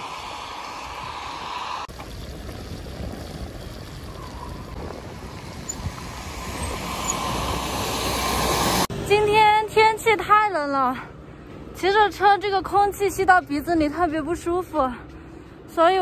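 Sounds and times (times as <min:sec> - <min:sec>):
tyre noise on wet road: 0:00.0 - 0:08.9
wind rushing over microphone: 0:00.0 - 0:08.9.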